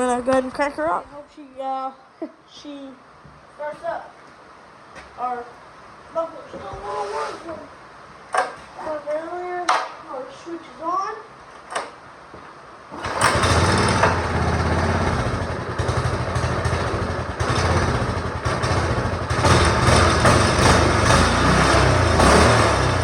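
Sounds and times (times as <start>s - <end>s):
small go-kart engine running: 13.0s - 23.0s.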